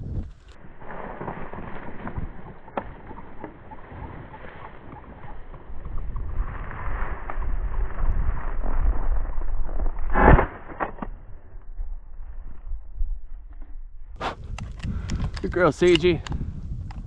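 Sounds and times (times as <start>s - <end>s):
wind buffeting microphone: 0.0s - 10.2s, 11.1s - 17.0s
sharp snap: 10.1s - 11.1s
small clicks: 14.5s - 17.0s.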